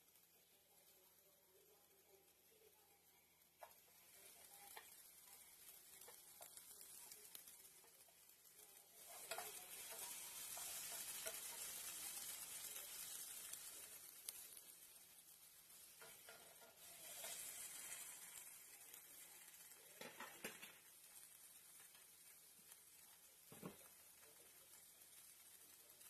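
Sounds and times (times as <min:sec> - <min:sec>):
vegetables sizzling in oil: 0:00.0 - 0:26.0
wooden spatula scraping pan: 0:09.0 - 0:14.6, 0:15.8 - 0:19.3.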